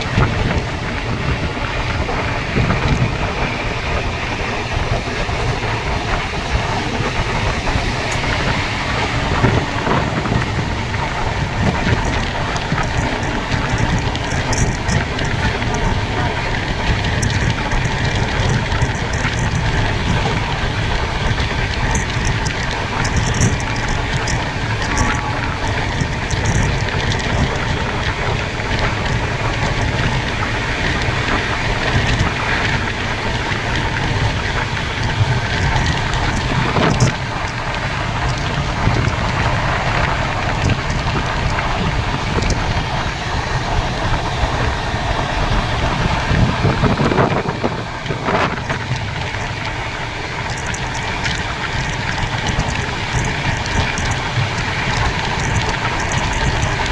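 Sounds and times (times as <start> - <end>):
train wheels rumbling and rattling: 0.0 - 56.9
wind rushing over microphone: 0.0 - 56.9
small clicks: 46.0 - 56.9.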